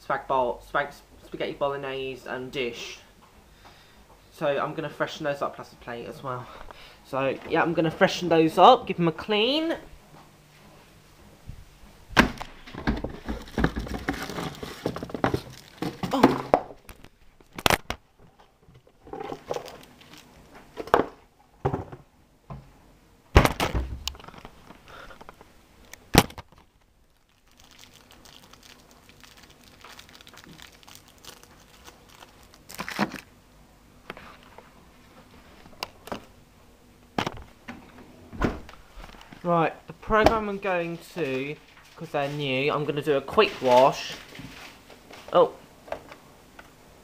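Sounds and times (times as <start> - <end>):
plastic boxes knocking: 12.2 - 16.8.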